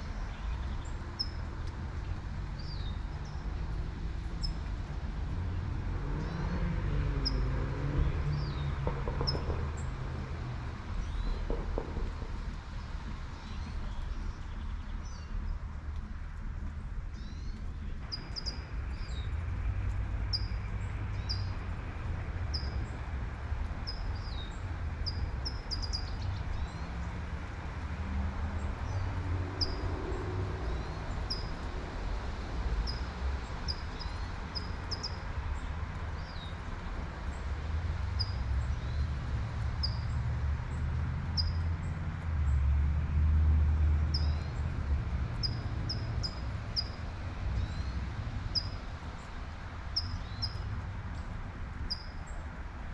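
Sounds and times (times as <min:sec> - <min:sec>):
low traffic rumble: 0:00.0 - 0:52.9
car passing: 0:03.7 - 0:11.3, 0:26.3 - 0:34.7, 0:35.3 - 0:51.2.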